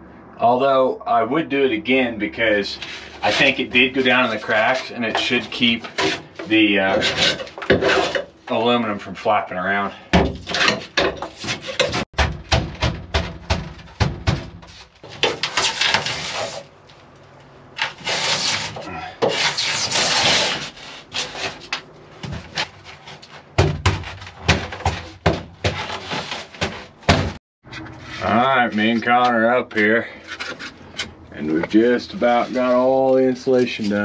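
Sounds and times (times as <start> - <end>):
scraping and rubbing: 2.4 - 8.7, 9.7 - 12.1, 13.2 - 34.0
insulation board being pounded: 12.2 - 14.8, 23.6 - 25.9, 26.6 - 27.4.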